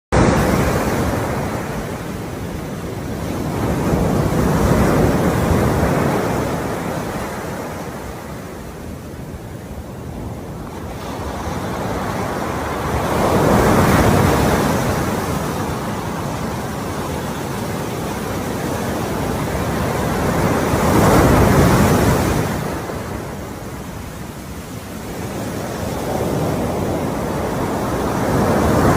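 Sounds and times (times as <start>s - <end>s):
ocean waves washing in: 0.1s - 28.9s.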